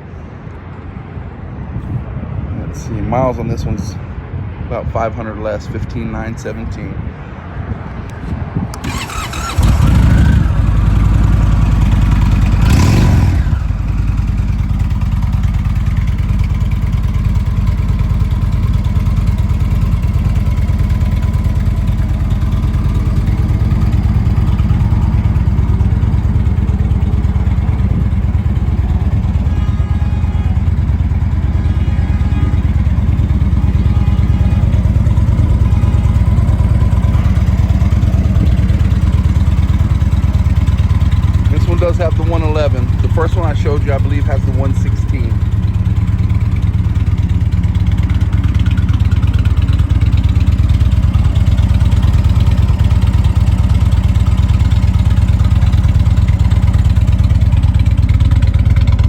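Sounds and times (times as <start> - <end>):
motorcycle engine starting and idling: 8.6 - 59.0.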